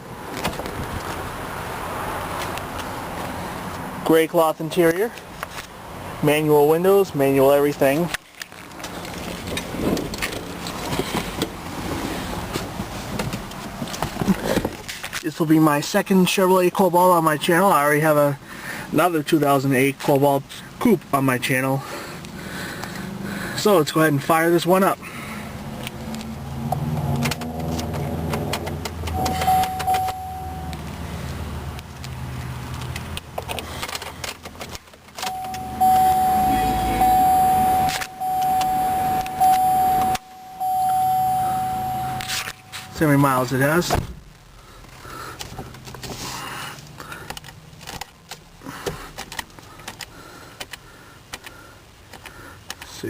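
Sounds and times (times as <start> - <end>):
car keys jangling and clicking: 27.3 - 31.0, 32.8 - 43.2
electronic warning beep: 29.1 - 30.9, 35.2 - 43.4
low steady hum: 29.1 - 31.2, 35.2 - 44.8
small irregular clicks: 46.8 - 52.9.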